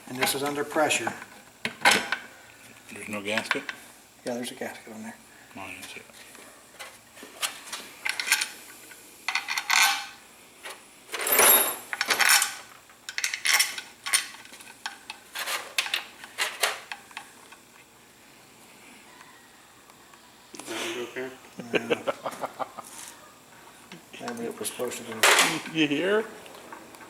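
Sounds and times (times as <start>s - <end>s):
metal tools clinking: 9.3s - 10.2s, 11.1s - 14.4s.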